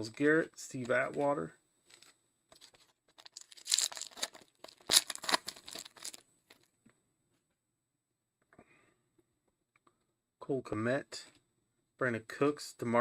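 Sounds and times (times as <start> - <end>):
wrapper tearing and crinkling: 2.6 - 6.2.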